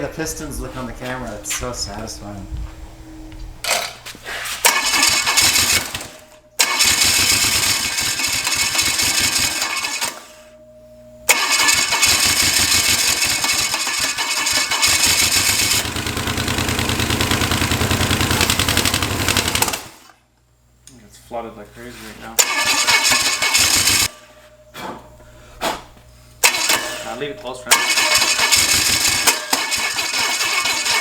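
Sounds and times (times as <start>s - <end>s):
engine starter cranking: 4.6s - 10.5s, 11.3s - 20.1s, 22.4s - 24.3s, 26.4s - 31.0s.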